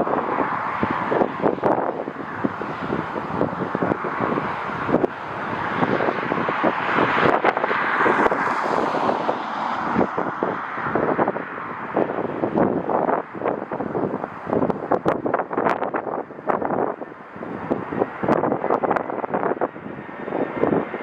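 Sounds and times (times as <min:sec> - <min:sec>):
jet airliner passing: 0:00.0 - 0:12.8, 0:17.0 - 0:21.0
wind buffeting microphone: 0:00.0 - 0:21.0.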